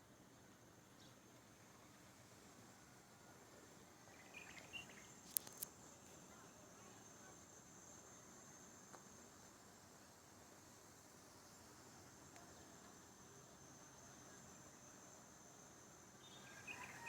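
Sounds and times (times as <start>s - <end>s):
crickets trilling: 3.8s - 8.9s, 10.8s - 17.0s.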